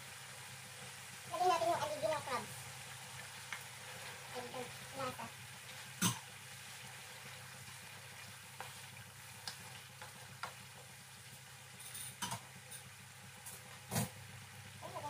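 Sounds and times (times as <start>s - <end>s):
food sizzling faintly in a pan: 0.0s - 15.0s
wooden spatula clicking on pan: 9.4s - 10.6s.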